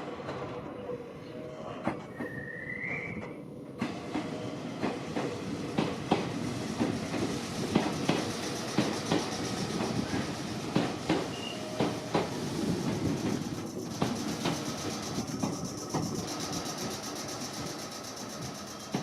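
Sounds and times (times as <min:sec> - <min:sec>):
rising squeal: 0:00.6 - 0:03.4, 0:11.3 - 0:12.7
train wheels clacking over rail joints: 0:03.2 - 0:19.0.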